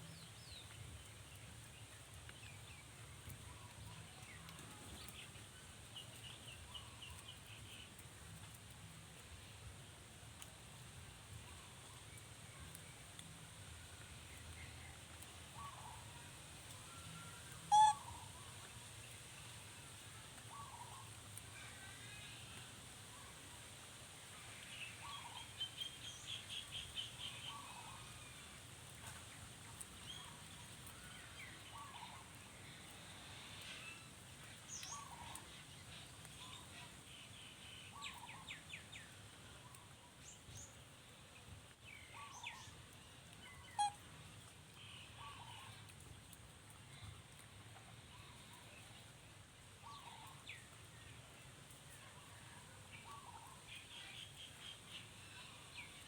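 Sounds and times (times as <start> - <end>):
faint bird calls: 16.8 - 18.6, 43.4 - 44.1, 44.7 - 45.9
bird squeak: 17.7 - 18.0.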